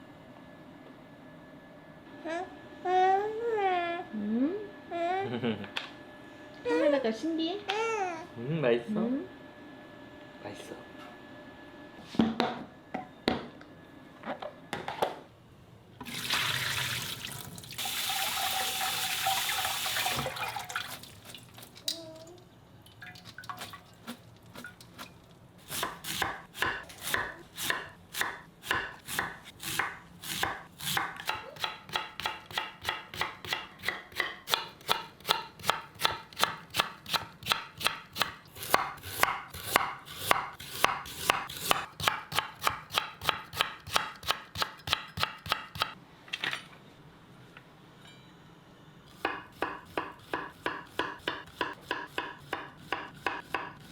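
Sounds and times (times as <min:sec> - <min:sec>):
kitchen tap running: 0:16.0 - 0:21.6
knife chopping on cutting board: 0:25.0 - 0:45.9, 0:49.2 - 0:53.9.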